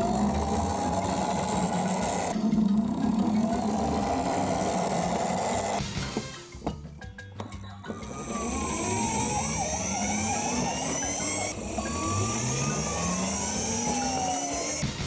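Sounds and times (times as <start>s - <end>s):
electronic engine revving: 0.0s - 6.0s, 8.0s - 15.0s
electronic siren wails: 8.0s - 15.0s.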